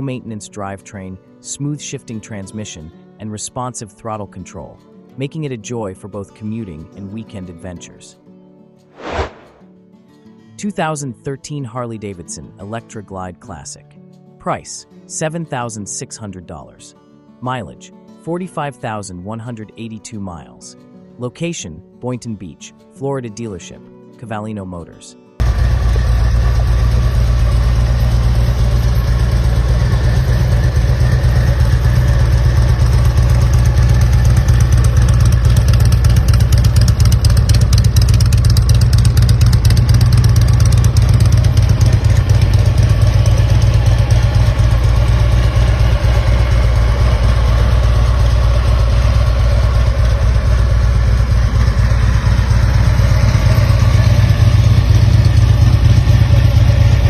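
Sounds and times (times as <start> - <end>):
motorcycle engine running: 25.4 - 57.0.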